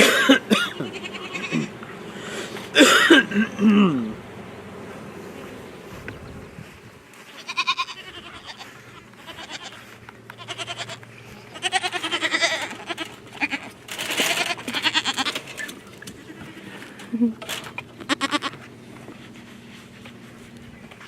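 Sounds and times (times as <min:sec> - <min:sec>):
goat kids bleating: 0:00.0 - 0:02.0, 0:07.2 - 0:19.1.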